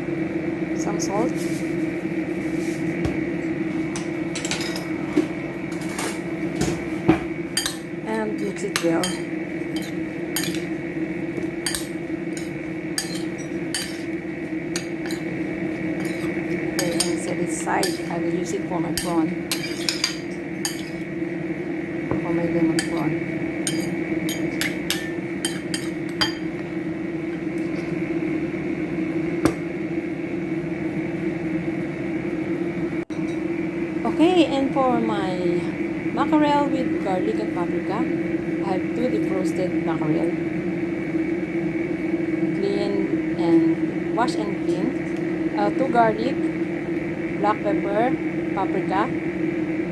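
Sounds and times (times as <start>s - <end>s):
steady background hum: 0.0s - 49.9s
spoon mixing in a bowl: 7.6s - 7.9s, 8.5s - 10.7s, 11.4s - 21.1s, 22.7s - 23.0s, 23.6s - 26.4s
spoon clinking against bowl: 9.8s - 10.6s, 11.7s - 14.0s, 19.0s - 21.0s, 23.7s - 26.4s.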